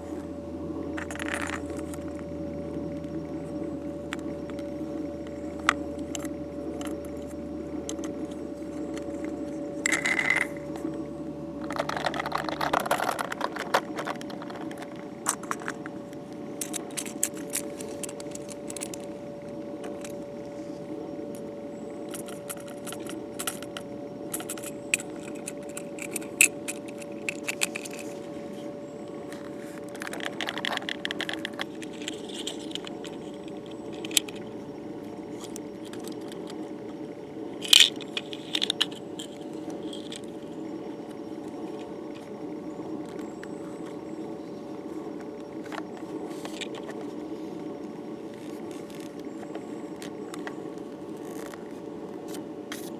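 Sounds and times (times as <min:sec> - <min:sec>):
steady hum: 0:00.0 - 0:52.9
small metal parts clicking: 0:01.0 - 0:02.3, 0:04.0 - 0:19.2, 0:19.8 - 0:20.2, 0:22.1 - 0:28.2, 0:29.3 - 0:34.6, 0:35.3 - 0:36.9, 0:37.6 - 0:42.2.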